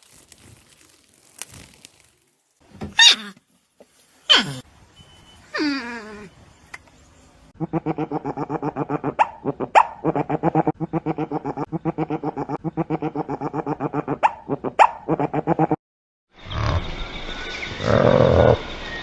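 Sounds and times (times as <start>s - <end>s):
sharp high squeaks: 16.8s - 19.0s.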